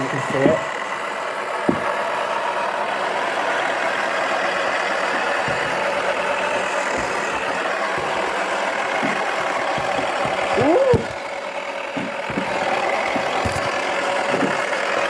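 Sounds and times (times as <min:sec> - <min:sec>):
toy washing machine motor whir: 0:00.0 - 0:15.0
short low knocks: 0:01.7 - 0:02.0, 0:05.2 - 0:11.2.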